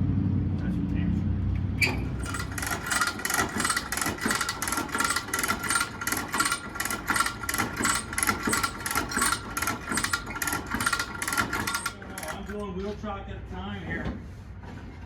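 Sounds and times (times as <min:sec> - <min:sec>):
metallic ratchet clicking: 0:01.8 - 0:12.6.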